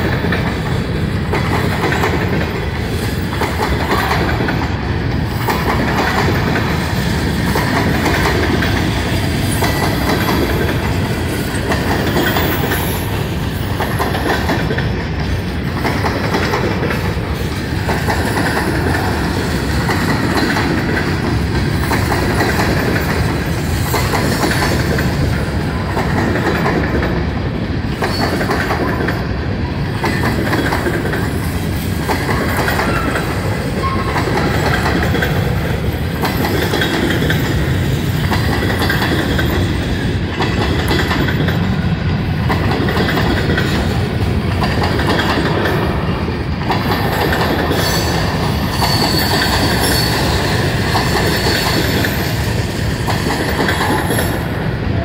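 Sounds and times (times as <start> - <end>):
wheels clicking over rail joints: 0.0 - 54.6
freight train rolling past: 0.0 - 55.0
faint wheel squeal: 48.8 - 50.4.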